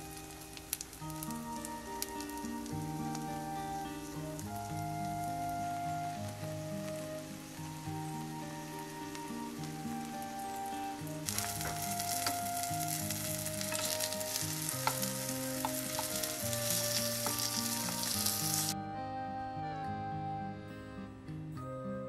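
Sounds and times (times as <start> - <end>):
food sizzling in oil: 0.0 - 18.8
utensils clicking against pan: 11.3 - 12.4, 13.1 - 18.7.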